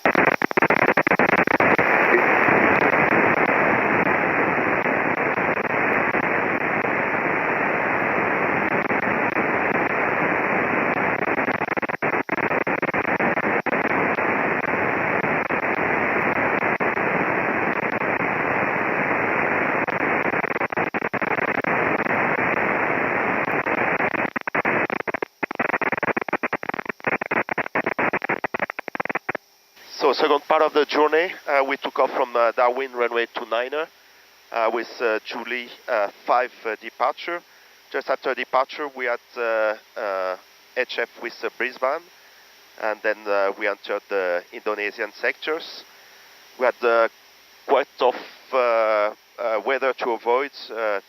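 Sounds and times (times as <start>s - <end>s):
radio static hiss: 0.0s - 51.0s.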